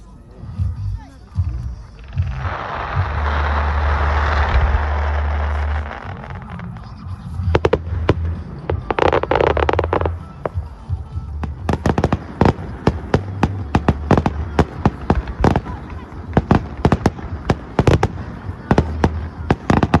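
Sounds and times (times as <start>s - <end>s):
fireworks bangs and crackles: 1.4s - 20.0s
rushing noise: 2.0s - 6.8s.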